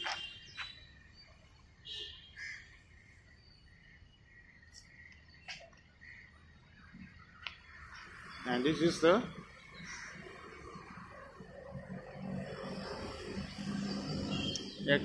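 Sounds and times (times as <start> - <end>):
bird chirps: 0.0 - 8.7
faint outdoor ambience: 0.0 - 15.0.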